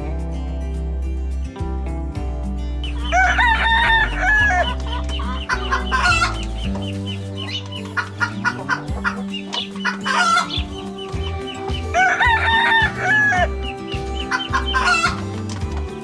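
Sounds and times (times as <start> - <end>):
chickens clucking: 2.8 - 16.0
rooster crowing: 9.9 - 15.4.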